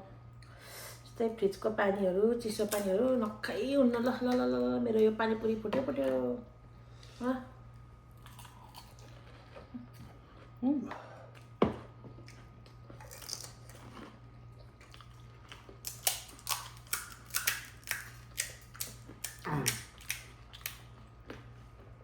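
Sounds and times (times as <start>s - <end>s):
chewing crunches: 8.1s - 10.6s, 11.3s - 22.0s.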